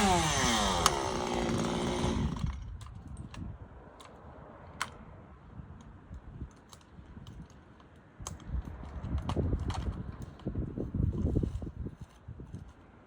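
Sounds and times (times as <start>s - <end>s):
chainsaw cutting out: 0.0s - 2.6s.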